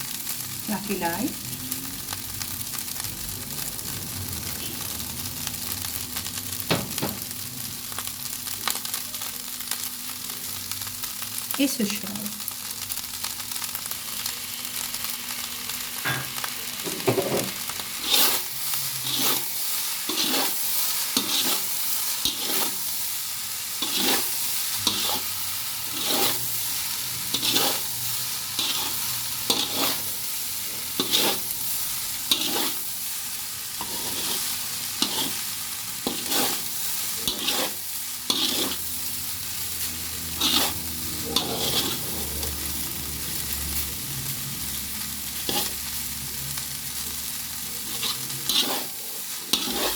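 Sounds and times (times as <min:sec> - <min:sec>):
food sizzling in a pan: 0:00.0 - 0:49.9
utensil scraping a pan: 0:17.1 - 0:22.8, 0:23.8 - 0:26.5, 0:27.3 - 0:28.0, 0:28.6 - 0:30.2, 0:30.8 - 0:31.5, 0:32.2 - 0:32.9, 0:33.8 - 0:38.9, 0:40.3 - 0:42.5, 0:45.4 - 0:45.8, 0:47.8 - 0:49.9.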